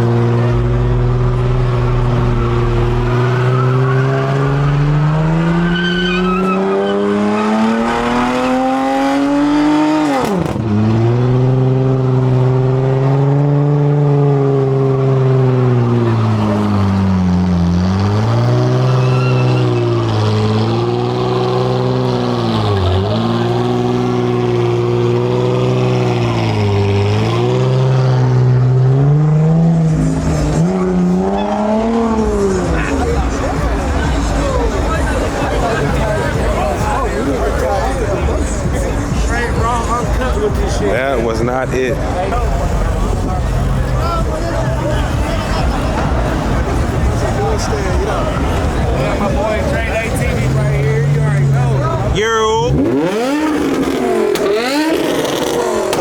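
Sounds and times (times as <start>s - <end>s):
car engine revving hard: 0.0s - 56.0s
tyre squeal: 5.5s - 8.7s, 17.9s - 21.6s.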